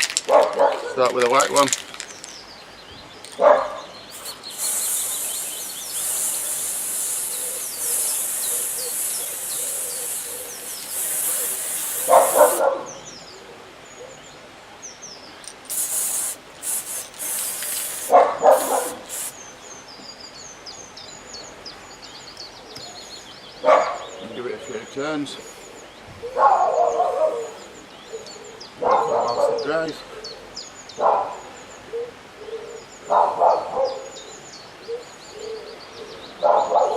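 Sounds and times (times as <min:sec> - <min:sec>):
faint birds chirping: 0:00.0 - 0:36.9
dog barking: 0:00.3 - 0:01.0, 0:03.4 - 0:03.9, 0:12.1 - 0:12.9, 0:18.1 - 0:19.1, 0:23.6 - 0:24.0, 0:26.4 - 0:27.5, 0:28.8 - 0:29.6, 0:31.0 - 0:31.4, 0:33.1 - 0:34.1, 0:36.4 - 0:36.9
spray paint can hissing: 0:04.1 - 0:12.6, 0:15.6 - 0:19.4.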